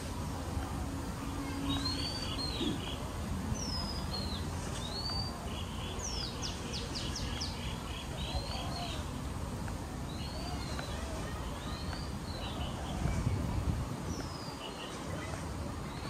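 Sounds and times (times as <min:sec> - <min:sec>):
songbirds whistling: 0:01.6 - 0:09.1, 0:14.1 - 0:16.0.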